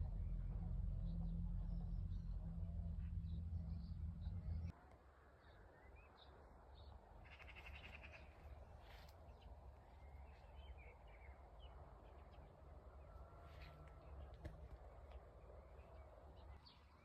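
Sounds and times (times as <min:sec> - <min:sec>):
low background rumble: 0:00.0 - 0:04.8.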